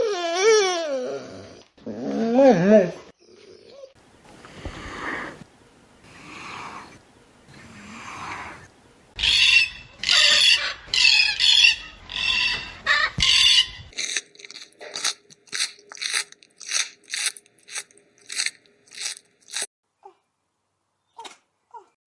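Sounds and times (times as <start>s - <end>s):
soft breathy animal sounds: 6.0s - 8.7s
animal squealing calls: 9.2s - 13.8s.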